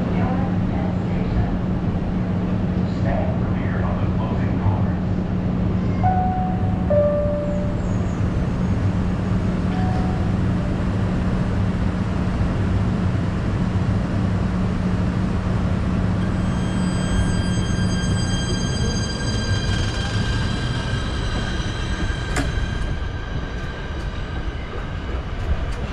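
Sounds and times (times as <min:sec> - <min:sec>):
train rumbling: 0:00.0 - 0:25.9
high squeaks: 0:16.2 - 0:24.8.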